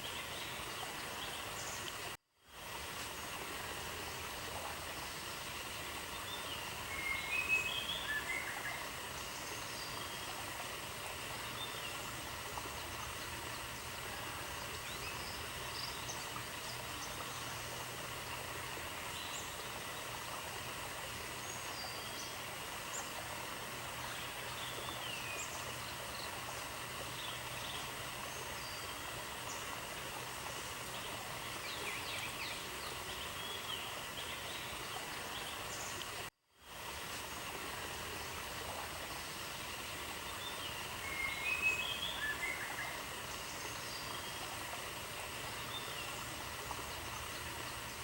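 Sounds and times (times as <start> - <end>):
even outdoor hiss: 0.0 - 48.0.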